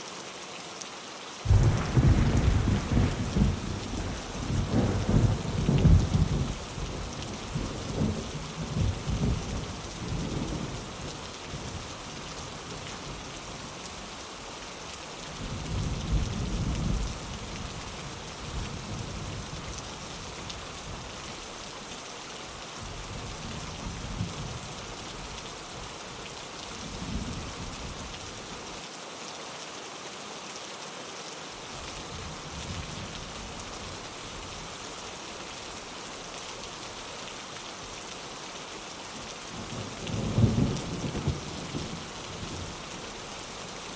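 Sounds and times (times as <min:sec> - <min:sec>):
rain pattering on a window: 0:00.2 - 0:43.9
distant thunder rumbling: 0:01.5 - 0:10.8.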